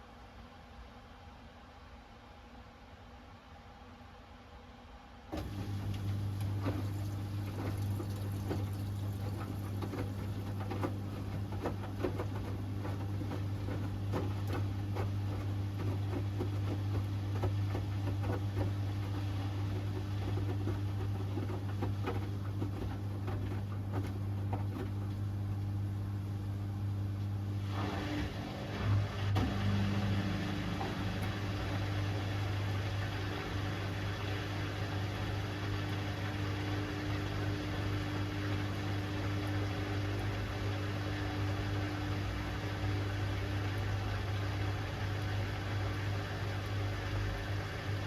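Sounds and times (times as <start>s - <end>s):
washing machine humming: 5.3s - 48.0s
water sloshing: 5.4s - 25.2s.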